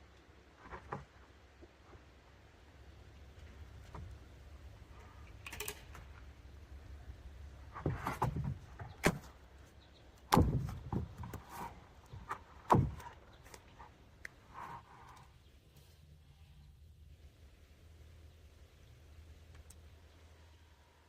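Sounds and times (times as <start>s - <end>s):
wooden boards knocking and thudding: 7.7s - 9.4s, 10.3s - 13.2s.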